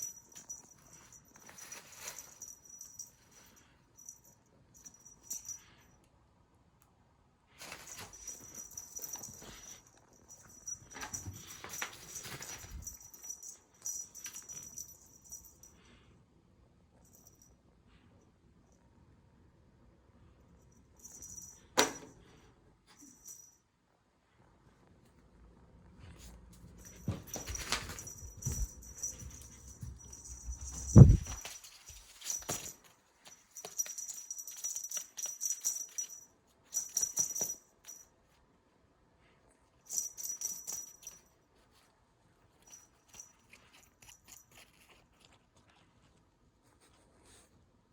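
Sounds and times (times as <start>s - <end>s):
cat toy rattling and jingling: 0.0s - 5.8s, 7.6s - 15.7s, 26.7s - 38.0s, 39.9s - 41.3s.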